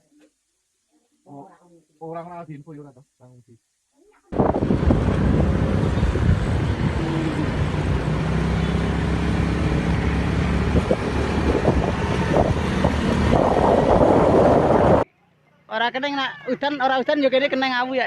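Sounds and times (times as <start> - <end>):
wind rushing over microphone: 4.3 - 8.4, 9.2 - 15.1
vehicle engine running: 4.4 - 15.0.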